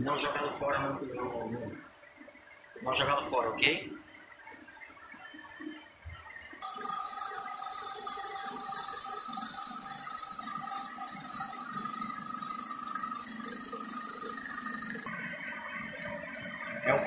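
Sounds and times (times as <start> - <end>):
small motor whirring: 6.5 - 17.0.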